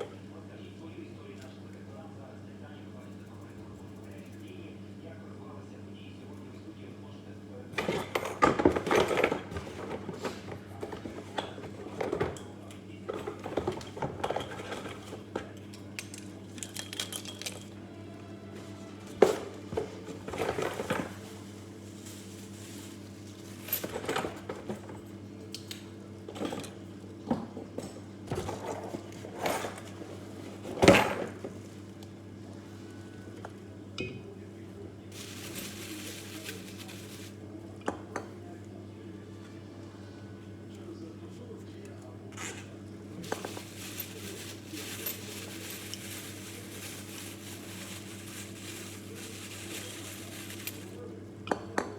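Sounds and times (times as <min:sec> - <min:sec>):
metal tools clinking: 0:43.2 - 0:51.0.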